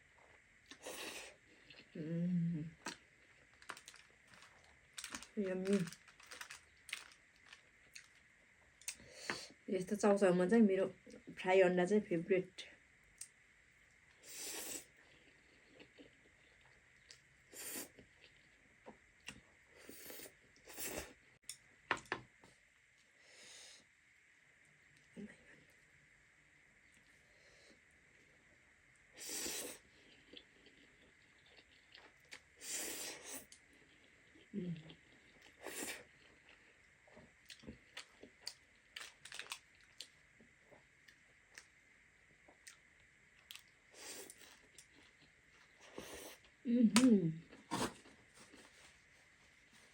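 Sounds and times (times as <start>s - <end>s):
person chewing: 2.8s - 8.1s, 29.6s - 36.7s, 37.4s - 40.2s
chewing with wet clicks: 37.4s - 40.2s
person biting food: 46.9s - 48.1s
person slurping noodles: 47.7s - 48.0s.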